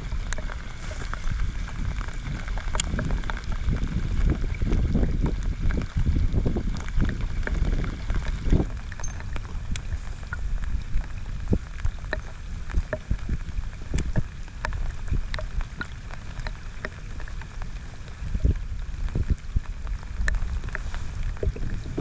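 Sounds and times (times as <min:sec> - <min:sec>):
rain falling: 0:00.0 - 0:22.0
raindrops ticking close by: 0:00.0 - 0:22.0
wind rumble on microphone: 0:00.0 - 0:22.0.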